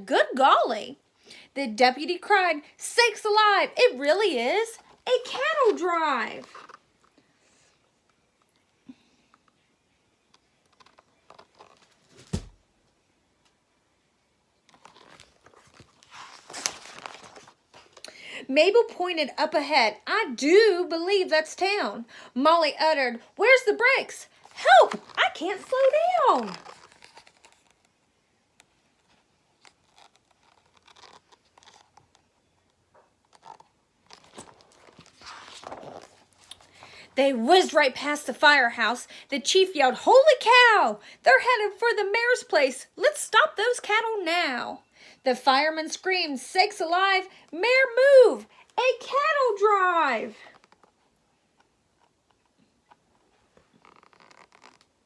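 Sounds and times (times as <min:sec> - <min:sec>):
page turning: 0:06.4 - 0:06.8, 0:10.4 - 0:12.6, 0:14.7 - 0:18.0, 0:24.3 - 0:37.0, 0:52.0 - 0:55.0
paper rustling: 0:14.7 - 0:18.0, 0:24.3 - 0:27.9, 0:29.0 - 0:32.3, 0:32.9 - 0:37.0.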